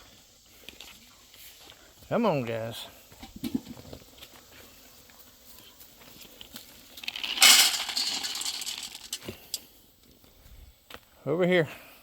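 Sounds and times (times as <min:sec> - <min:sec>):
pellets rattling into a bowl: 0:07.0 - 0:09.2.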